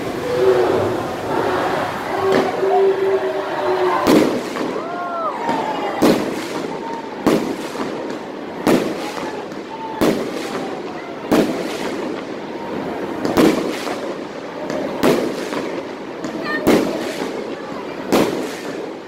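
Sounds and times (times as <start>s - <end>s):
firework shells bursting: 4.0s - 12.4s, 13.1s - 19.0s.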